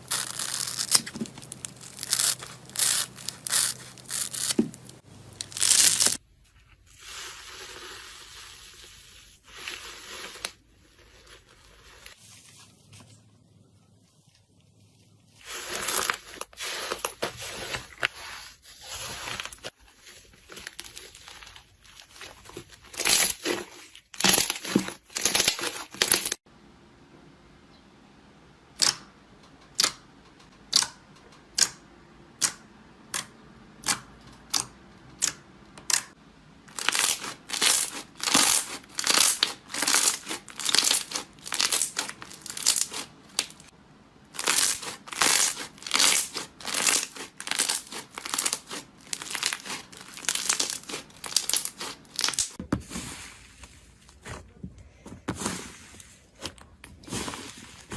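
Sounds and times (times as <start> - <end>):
material crinkling: 0.0 - 7.0, 36.7 - 43.7, 44.3 - 57.9.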